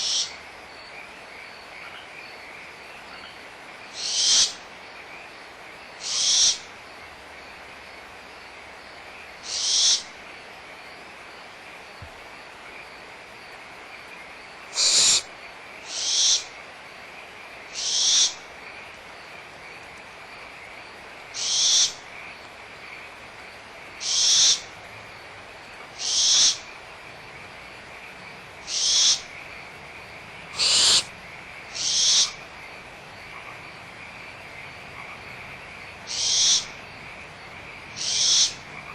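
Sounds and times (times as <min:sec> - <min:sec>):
frog chorus: 0:00.0 - 0:38.9
owlets hissing begging calls: 0:09.5 - 0:10.1, 0:14.7 - 0:15.3, 0:15.9 - 0:16.5, 0:30.5 - 0:31.1, 0:31.8 - 0:32.4.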